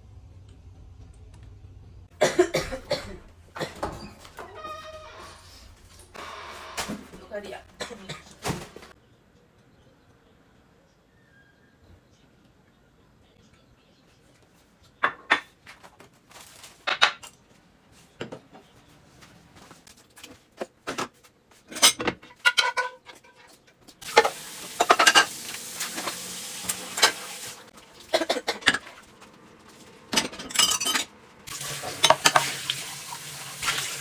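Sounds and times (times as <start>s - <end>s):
utensils clinking against pots: 21.7s - 27.4s, 30.1s - 32.6s
food sizzling in a pan: 24.0s - 27.7s, 31.5s - 34.0s.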